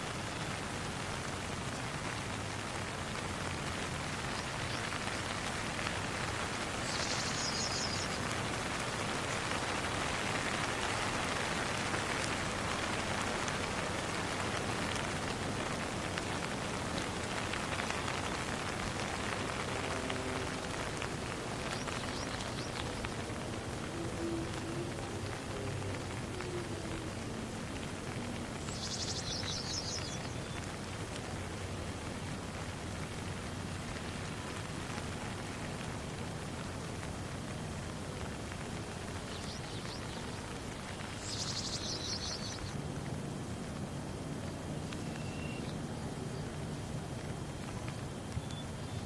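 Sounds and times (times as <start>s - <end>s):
rain falling: 0.0s - 49.0s.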